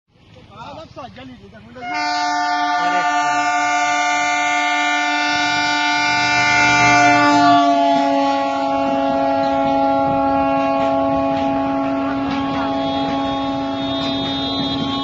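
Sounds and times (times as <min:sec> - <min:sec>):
train horn blast: 0:01.8 - 0:15.0.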